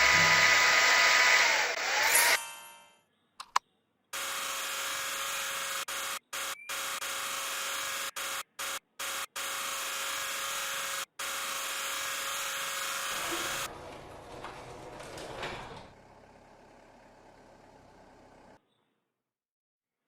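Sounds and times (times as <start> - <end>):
small electric motor whining: 0.0 - 2.4, 4.2 - 13.7.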